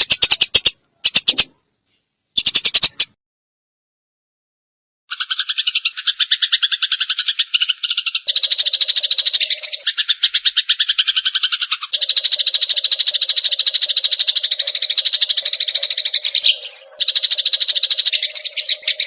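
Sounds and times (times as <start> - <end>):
sparrows chattering: 0.0 - 1.6, 2.4 - 3.2, 5.1 - 19.0.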